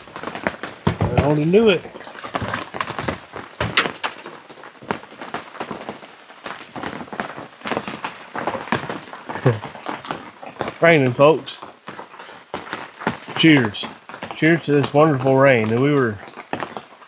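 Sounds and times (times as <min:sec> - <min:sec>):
rain hissing: 0:00.0 - 0:17.0
taps and knocks: 0:00.2 - 0:01.6.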